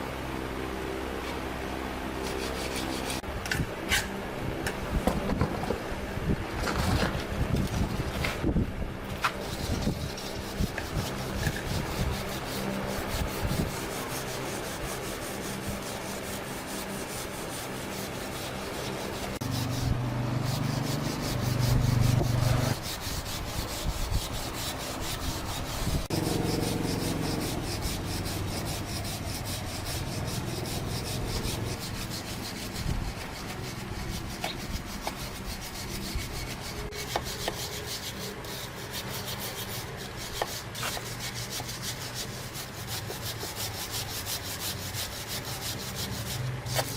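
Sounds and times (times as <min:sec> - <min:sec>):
low hum: 0:00.0 - 0:34.3
sanding scratchy rubbing: 0:02.1 - 0:03.3, 0:06.6 - 0:08.5, 0:09.1 - 0:46.9.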